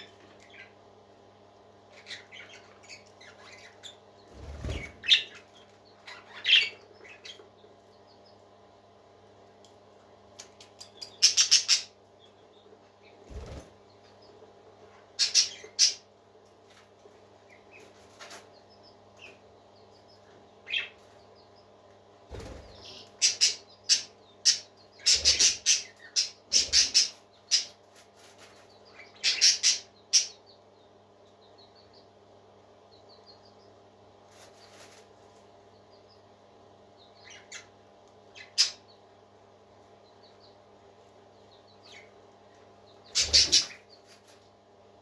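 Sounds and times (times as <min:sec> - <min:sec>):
parakeets chirping: 0:00.0 - 0:00.8, 0:01.8 - 0:08.4, 0:10.4 - 0:14.4, 0:15.1 - 0:16.1, 0:17.4 - 0:21.6, 0:22.3 - 0:30.9, 0:36.9 - 0:39.0, 0:41.4 - 0:42.2, 0:42.8 - 0:44.4
steady low hum: 0:00.0 - 0:45.0.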